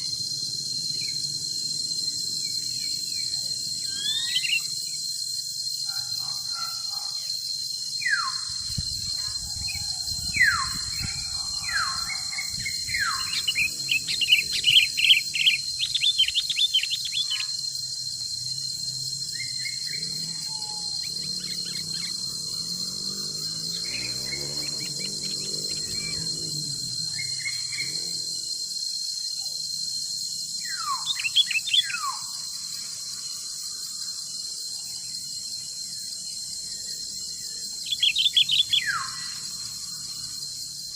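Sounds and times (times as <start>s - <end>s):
insects droning: 0.0s - 40.9s
birds whistling: 0.9s - 5.0s, 8.0s - 28.2s, 30.6s - 33.0s, 36.3s - 40.3s.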